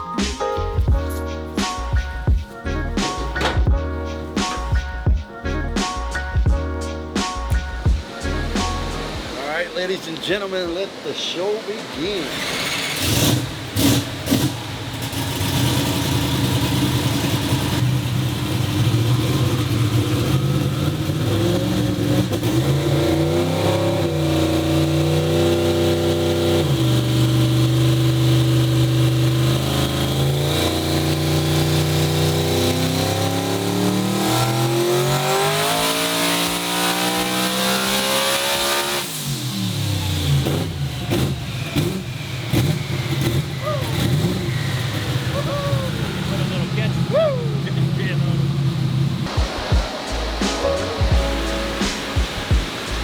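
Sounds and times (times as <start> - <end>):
truck engine revving: 0.0 - 53.0
high whine: 49.3 - 53.0.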